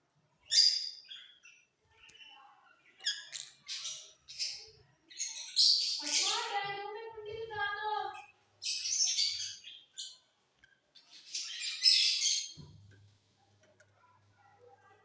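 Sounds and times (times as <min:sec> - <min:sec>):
lovebirds chattering and squawking: 0:00.4 - 0:06.7, 0:08.1 - 0:10.3, 0:10.9 - 0:12.6.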